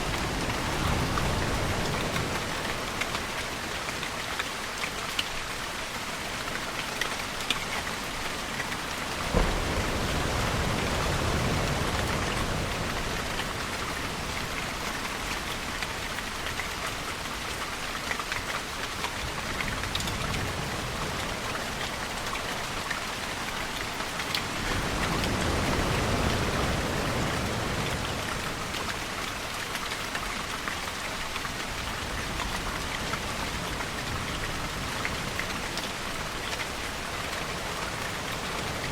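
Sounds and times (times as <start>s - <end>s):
steady rainfall: 0.0s - 38.9s
distant thunder rumbling: 9.2s - 13.3s.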